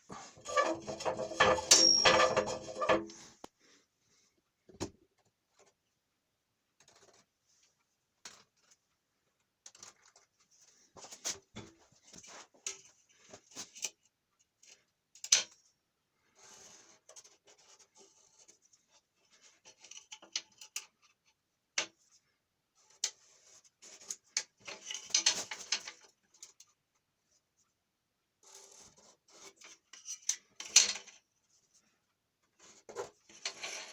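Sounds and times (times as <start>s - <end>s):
small parts clicking and scraping: 0.3s - 3.3s.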